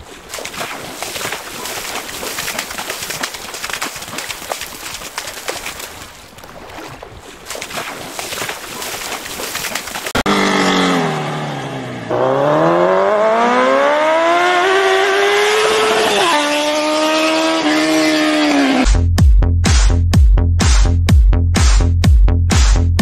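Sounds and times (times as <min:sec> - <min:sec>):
dog splashing through water: 0:00.0 - 0:10.2
car engine revving: 0:10.2 - 0:18.9.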